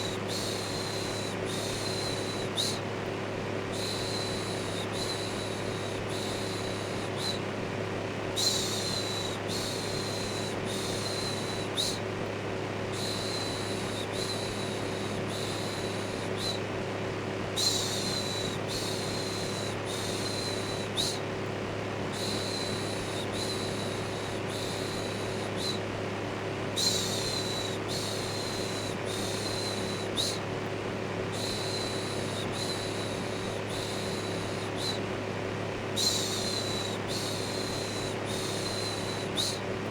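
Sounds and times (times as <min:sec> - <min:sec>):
electric fan hum: 0:00.0 - 0:39.9.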